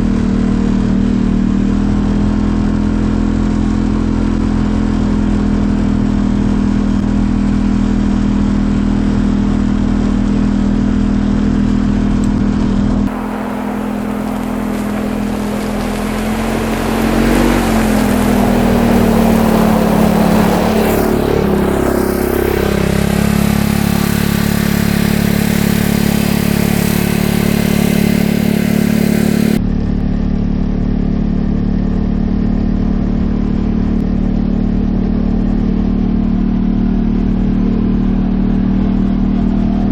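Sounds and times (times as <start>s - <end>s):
utility vehicle engine running: 0.0s - 39.9s
ride noise: 12.4s - 29.6s.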